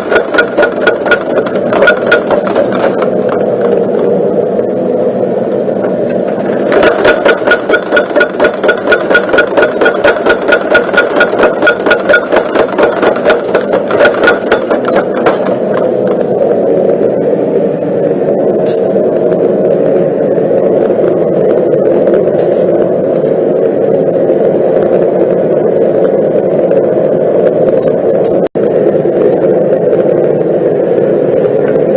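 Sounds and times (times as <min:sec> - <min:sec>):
power hammer ram striking: 0:00.0 - 0:03.7, 0:06.6 - 0:16.3
power hammer motor running: 0:00.0 - 0:04.2, 0:05.8 - 0:16.6.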